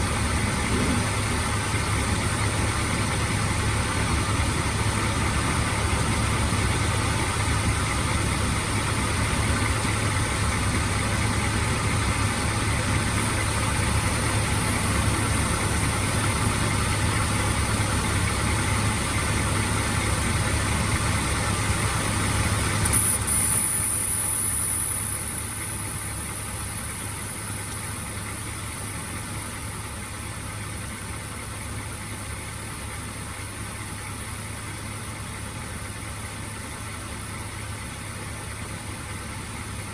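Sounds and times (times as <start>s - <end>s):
car engine idling: 0.0s - 39.9s
thin high whine: 22.8s - 39.9s.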